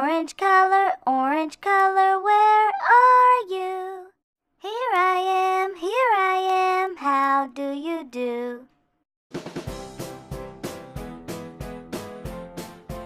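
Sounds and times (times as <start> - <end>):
child singing unaccompanied: 0.0 - 8.7.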